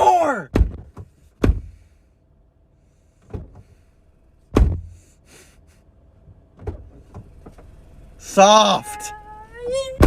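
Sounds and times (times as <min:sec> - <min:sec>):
car door slamming: 0:00.5 - 0:01.8, 0:03.2 - 0:03.7, 0:04.5 - 0:05.0, 0:06.3 - 0:07.7.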